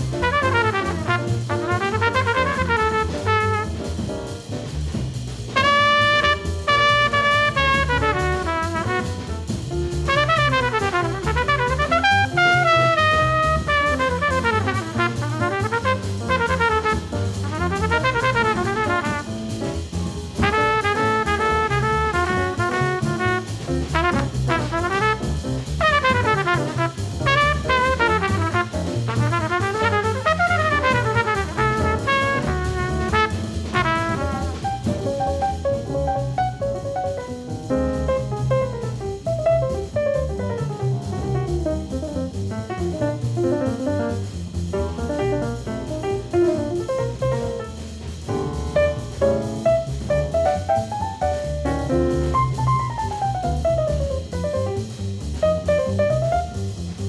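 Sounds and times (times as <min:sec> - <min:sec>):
horn solo: 0:00.0 - 0:03.8, 0:05.6 - 0:09.3, 0:10.1 - 0:19.3, 0:20.4 - 0:35.0
piano bass and drums: 0:00.0 - 0:57.0.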